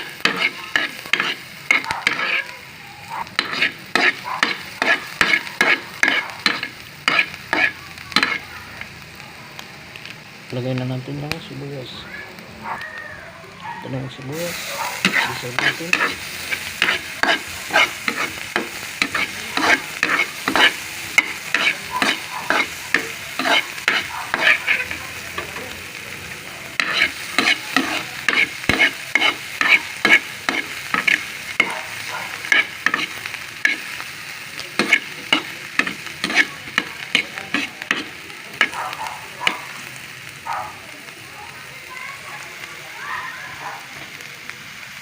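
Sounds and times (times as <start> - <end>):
utensil scraping pan: 0.0 - 2.5, 3.4 - 8.4, 14.5 - 25.6, 26.8 - 34.0, 34.8 - 38.8
garlic and onion sizzling in pan: 0.0 - 45.0.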